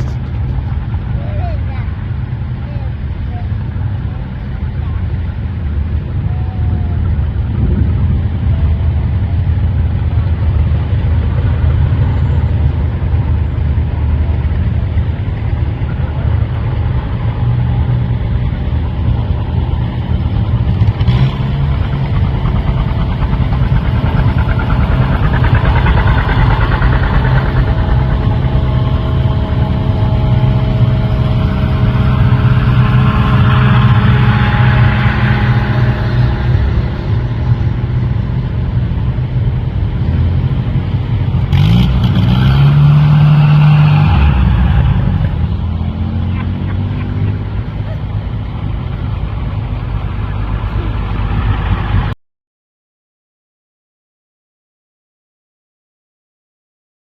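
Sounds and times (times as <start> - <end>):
rushing noise: 0.0 - 52.2
vehicle engine droning: 0.0 - 52.2.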